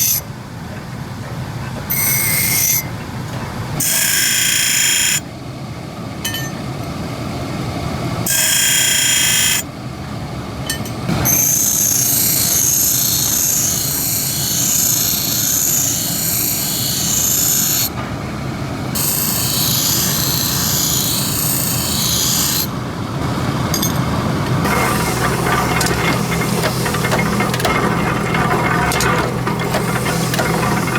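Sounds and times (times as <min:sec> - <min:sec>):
grinder motor hum: 0:24.5 - 0:30.9.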